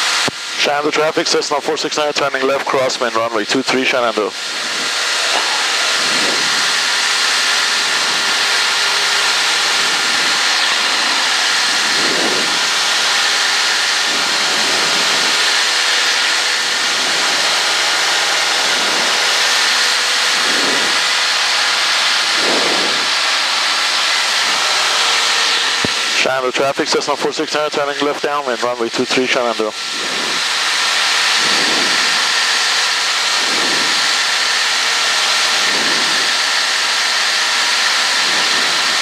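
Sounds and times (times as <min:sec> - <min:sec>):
airplane engine droning: 0:00.0 - 0:39.0
steady cabin hums: 0:00.0 - 0:39.0
wind rushing: 0:04.4 - 0:17.6, 0:20.1 - 0:26.2, 0:29.8 - 0:32.5.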